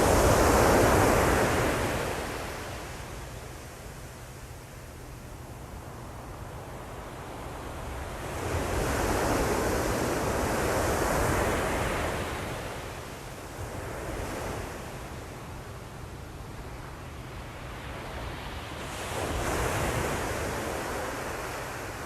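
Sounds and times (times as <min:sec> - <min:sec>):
ocean waves breaking on shore: 0:00.0 - 0:03.7, 0:17.1 - 0:22.0.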